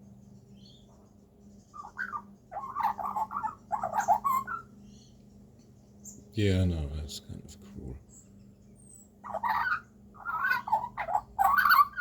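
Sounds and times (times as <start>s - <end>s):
magpie warbling and chattering: 1.8s - 4.7s, 9.2s - 12.0s.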